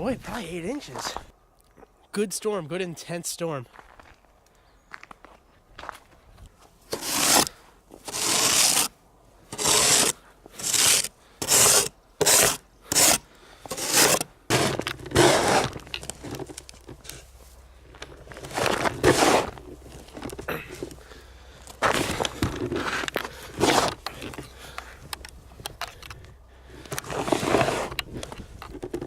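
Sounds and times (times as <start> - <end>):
snow shovel scraping snow: 6.9 - 8.9, 9.5 - 17.3, 18.3 - 20.8, 21.8 - 24.5, 27.0 - 28.2.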